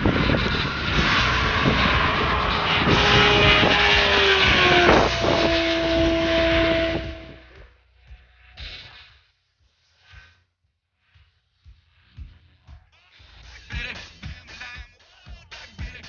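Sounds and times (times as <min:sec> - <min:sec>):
heavy wind noise: 0:00.0 - 0:07.5
motorcycle engine running hard: 0:00.0 - 0:07.6.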